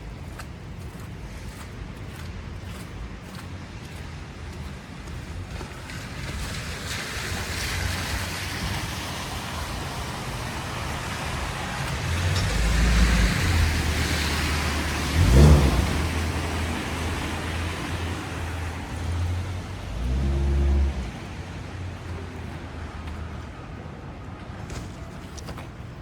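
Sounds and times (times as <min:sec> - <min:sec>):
vehicle engine rumble: 0:00.0 - 0:26.0.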